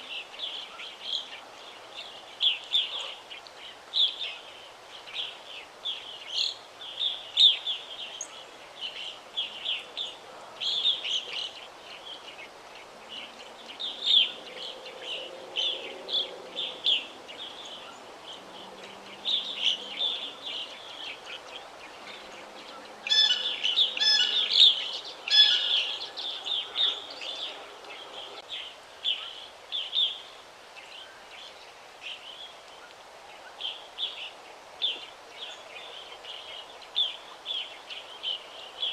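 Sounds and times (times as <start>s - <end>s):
songbirds chirping and singing: 6.5s - 30.2s.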